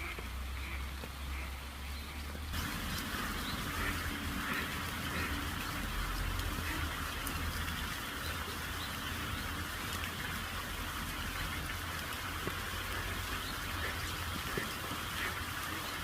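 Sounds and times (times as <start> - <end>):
rain pattering: 0.0 - 16.0
raindrop ticks: 2.6 - 8.0.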